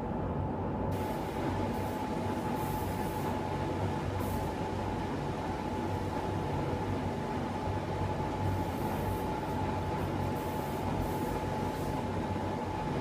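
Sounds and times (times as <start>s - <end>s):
air spray gun hissing: 0.9s - 3.4s, 4.2s - 4.6s, 8.5s - 9.6s, 10.2s - 12.0s.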